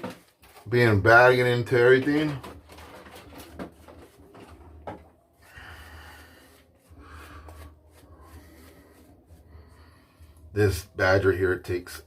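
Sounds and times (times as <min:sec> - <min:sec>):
shaving brush bristles rubbing soap: 0:06.1 - 0:10.0.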